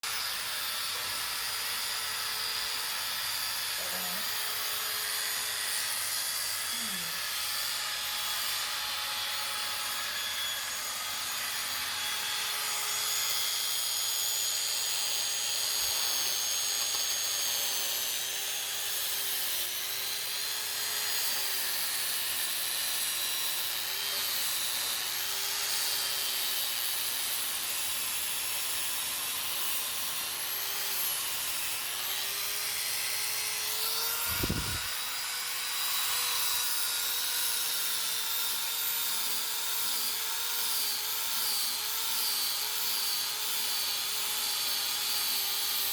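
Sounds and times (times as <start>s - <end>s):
electric sander on wood: 0.0s - 45.9s.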